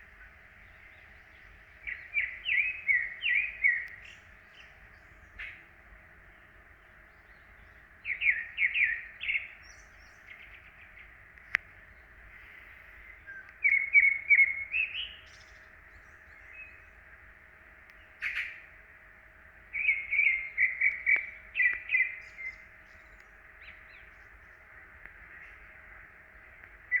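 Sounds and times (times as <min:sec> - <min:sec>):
faint steady hum: 0:00.0 - 0:27.0
songbird chirping: 0:00.0 - 0:27.0.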